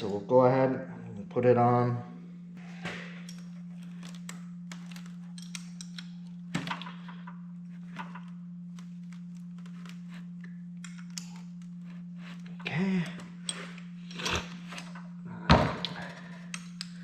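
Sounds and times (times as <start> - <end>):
steady low hum: 0.0 - 17.0
metal parts clicking and tapping: 3.2 - 7.3, 15.8 - 17.0.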